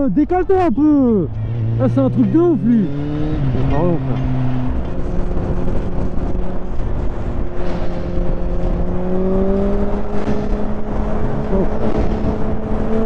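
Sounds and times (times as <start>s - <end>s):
motorcycle engine at highway speed: 1.2s - 13.0s
wind noise on microphone: 3.3s - 13.0s.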